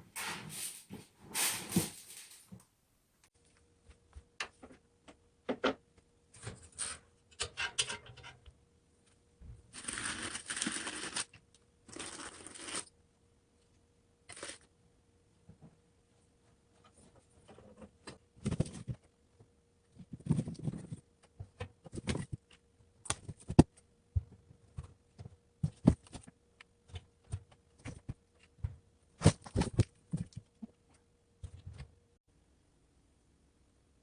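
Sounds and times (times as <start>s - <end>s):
objects being handled: 0.0s - 2.6s, 16.4s - 31.9s.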